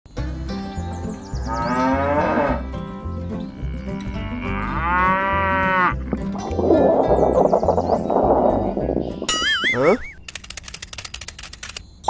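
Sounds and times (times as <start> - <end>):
background music with low beat: 0.1 - 9.4
cow mooing: 1.5 - 2.7, 3.5 - 6.3.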